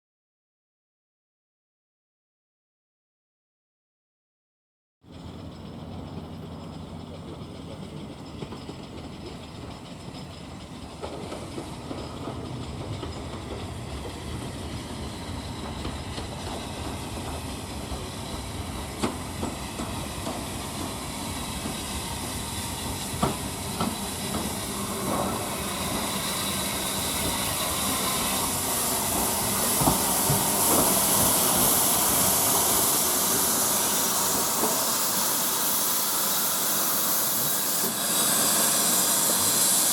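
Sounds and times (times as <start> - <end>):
steam locomotive: 5.1 - 39.9
steam hissing: 11.0 - 39.9.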